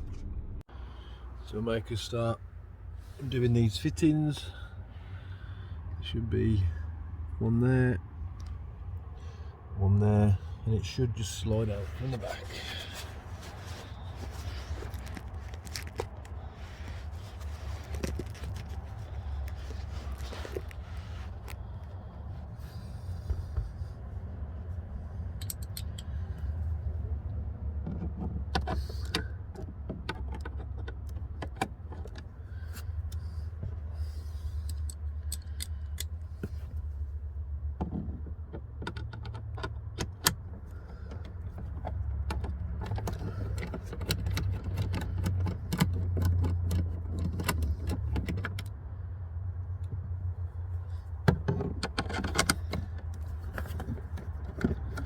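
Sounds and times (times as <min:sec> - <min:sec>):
steady low rumble: 0:00.0 - 0:28.1.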